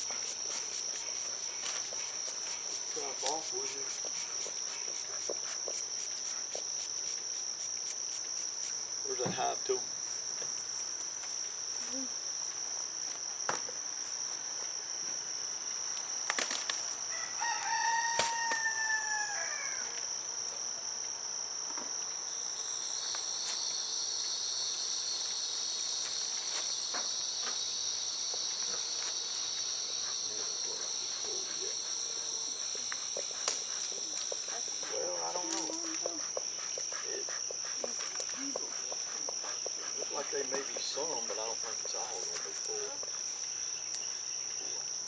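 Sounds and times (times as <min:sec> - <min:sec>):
high-pitched insect drone: 0:00.0 - 0:45.0
rooster crowing: 0:17.1 - 0:20.0.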